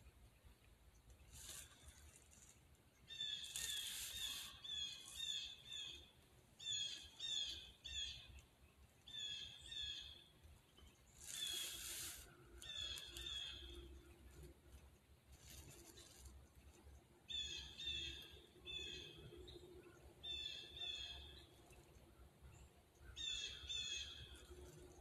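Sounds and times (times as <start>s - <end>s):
rustling hiss: 0.4s - 7.7s, 11.0s - 16.8s.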